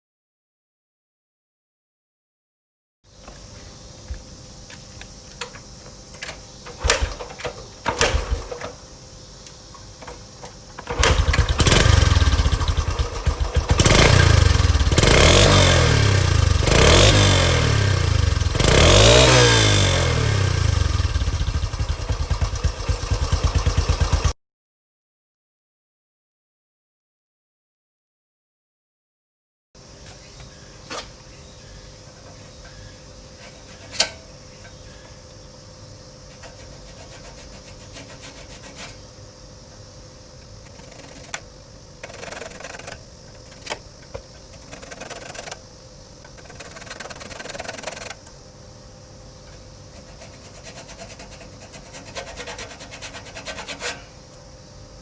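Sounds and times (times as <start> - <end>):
rubbing and scraping: 33.4 - 35.0, 36.3 - 39.1, 40.6 - 41.4, 42.0 - 43.8, 44.4 - 45.6, 46.3 - 48.2, 49.9 - 54.2
sharp metal clicks and knocks: 46.2 - 48.4.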